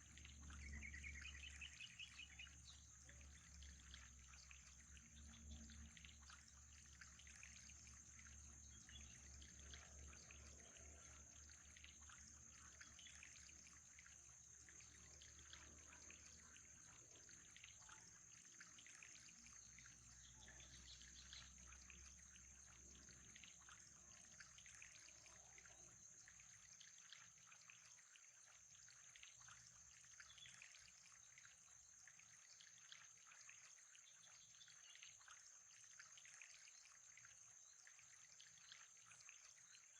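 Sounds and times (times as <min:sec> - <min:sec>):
faint trickling water: 0:00.0 - 0:39.9.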